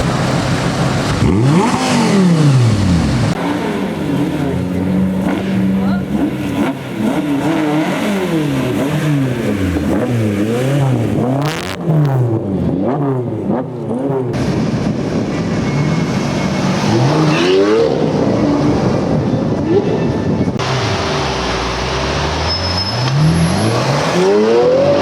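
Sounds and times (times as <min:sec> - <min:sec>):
sports car engine revving: 0:00.0 - 0:15.0, 0:20.5 - 0:25.0.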